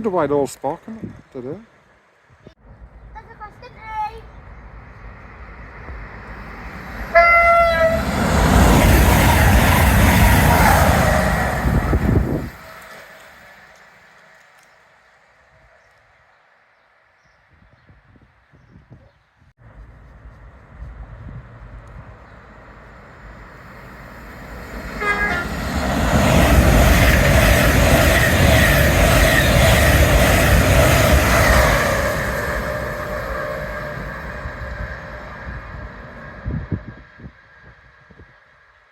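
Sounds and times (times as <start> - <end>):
train rushing past: 2.6 - 14.4, 19.6 - 38.8
train horn blast: 7.1 - 12.2, 25.0 - 25.8.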